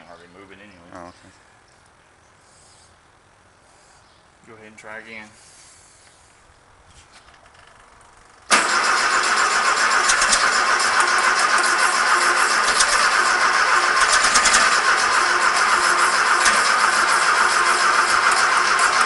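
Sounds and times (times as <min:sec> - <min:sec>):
air-cooled engine running: 0:08.2 - 0:19.0.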